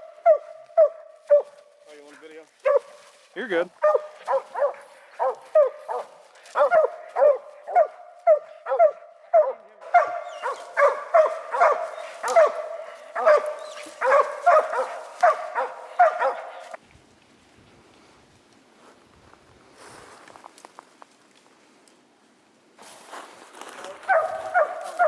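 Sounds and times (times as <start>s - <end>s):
dog barking: 0.0s - 1.7s, 2.6s - 3.1s, 3.8s - 16.8s, 23.9s - 25.0s.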